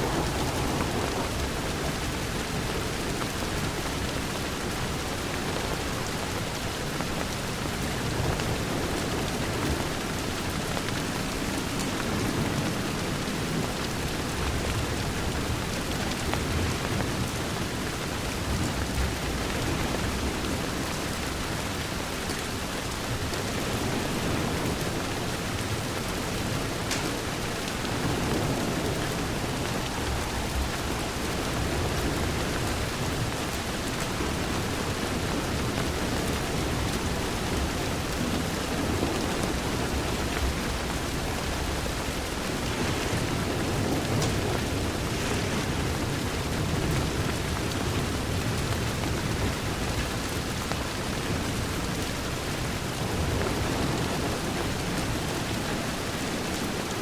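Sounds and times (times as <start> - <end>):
distant thunder rumbling: 0.0 - 4.4, 23.6 - 48.4
heavy rain on a window: 0.0 - 57.0.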